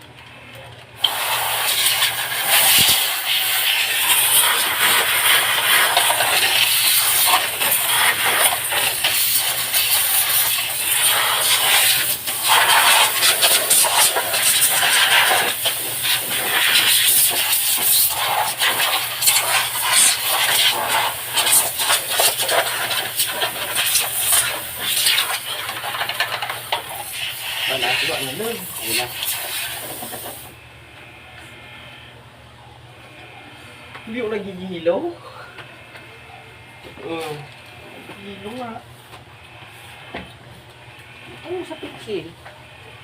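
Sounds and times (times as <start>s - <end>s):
pressurised water spray hissing: 1.0s - 30.4s.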